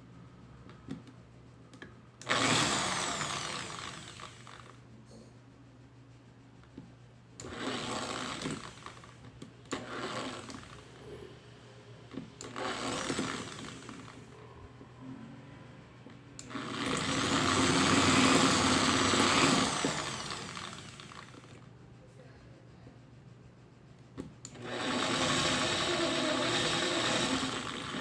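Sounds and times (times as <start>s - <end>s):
drill press motor running: 2.2s - 4.8s, 7.4s - 11.0s, 12.2s - 14.3s, 16.4s - 21.6s, 24.4s - 28.0s.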